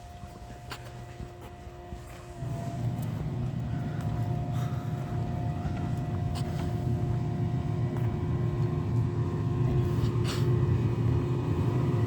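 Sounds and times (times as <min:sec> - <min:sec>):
diesel engine idling with whine: 0:00.0 - 0:12.0.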